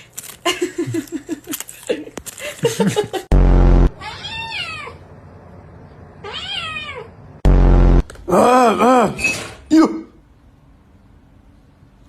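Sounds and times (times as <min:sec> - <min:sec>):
loud low buzz: 0:03.3 - 0:04.0, 0:07.4 - 0:08.4
cat meowing: 0:04.0 - 0:05.0, 0:06.2 - 0:07.1.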